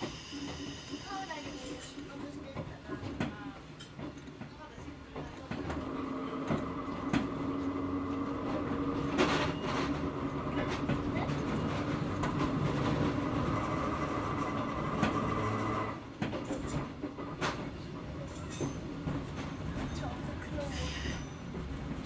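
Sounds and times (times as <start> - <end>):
electric railcar motor hum and whine: 0.0 - 2.0, 5.7 - 16.2.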